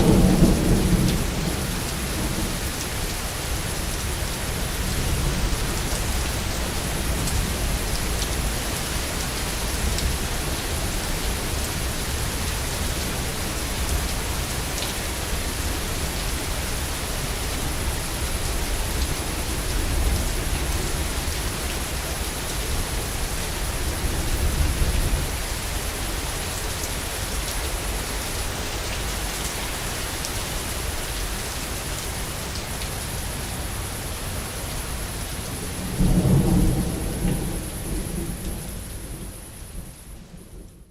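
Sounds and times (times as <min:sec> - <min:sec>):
rumble of thunder: 0:00.0 - 0:02.9, 0:35.5 - 0:40.9
heavy rain falling: 0:00.0 - 0:40.9.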